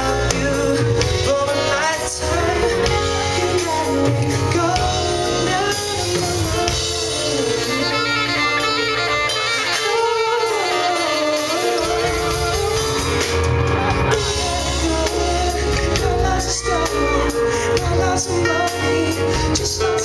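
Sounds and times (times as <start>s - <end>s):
bass: 0.0s - 20.0s
live band music: 0.0s - 20.0s
person singing: 0.0s - 20.0s.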